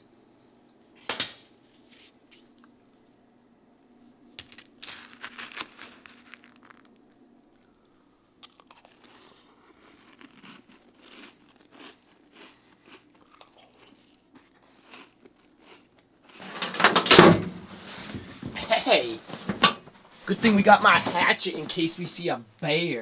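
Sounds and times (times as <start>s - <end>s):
person chewing crunchy cereal: 4.5s - 16.4s.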